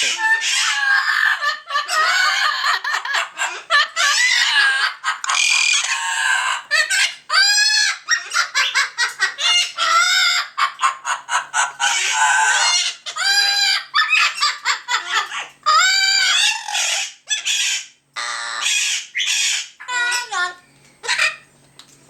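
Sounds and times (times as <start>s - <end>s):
parrots squawking and chattering: 0.0s - 21.5s.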